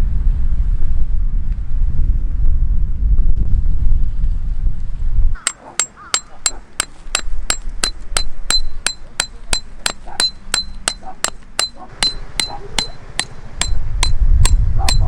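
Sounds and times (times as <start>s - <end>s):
wind buffeting microphone: 0.0s - 15.0s
hammer striking metal stake: 5.4s - 15.0s.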